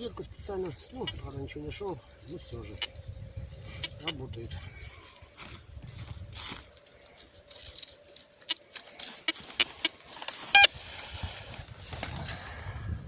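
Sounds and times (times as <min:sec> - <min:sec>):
faint steady tone: 0:00.0 - 0:05.6
metal detector beep: 0:00.9 - 0:01.5, 0:02.4 - 0:03.0, 0:03.6 - 0:04.3, 0:08.4 - 0:10.8
footsteps: 0:04.7 - 0:12.2.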